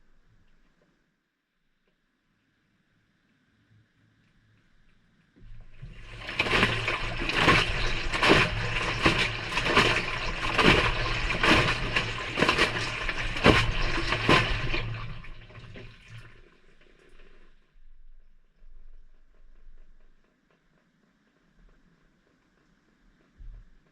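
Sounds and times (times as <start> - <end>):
washer motor hum: 5.4 - 17.5
water splashing in washer drum: 5.4 - 17.5.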